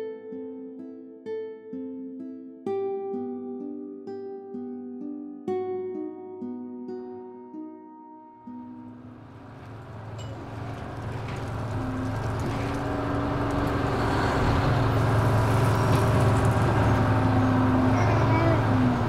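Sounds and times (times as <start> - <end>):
bus engine and road noise: 8.8 - 19.0.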